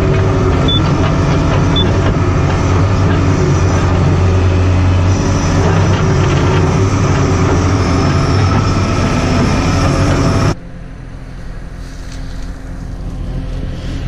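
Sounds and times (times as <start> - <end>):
skid loader engine running: 0.0 - 14.0.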